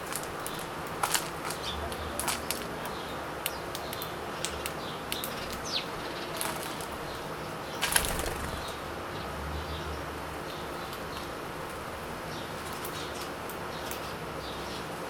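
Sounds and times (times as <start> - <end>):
birds chirping: 0.0 - 15.0
wing flutters: 7.8 - 8.9.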